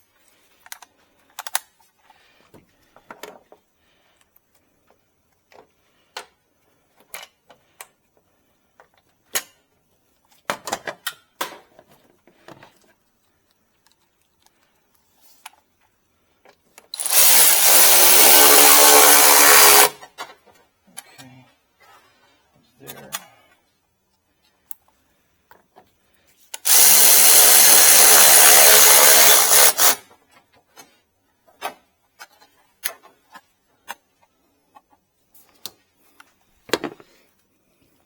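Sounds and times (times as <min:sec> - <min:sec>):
power drill driving a screw: 0:17.0 - 0:20.0, 0:26.6 - 0:30.0.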